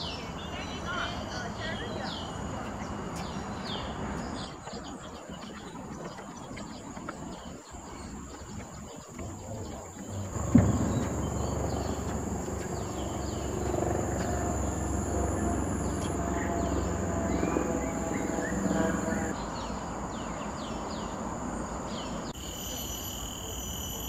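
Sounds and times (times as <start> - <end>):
birds chirping: 0.0 - 21.2
steady high whine: 7.8 - 19.4
low rumble: 9.2 - 19.4
sudden bump: 10.2 - 12.8.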